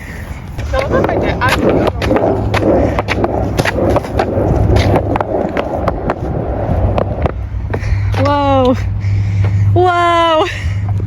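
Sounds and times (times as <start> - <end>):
skateboard wheels rumbling: 0.0 - 8.4
skateboard clicks and knocks: 0.6 - 6.2.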